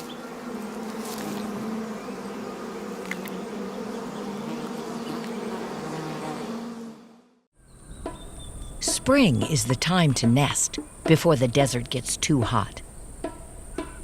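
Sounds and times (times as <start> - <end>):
bees buzzing: 0.0 - 7.4.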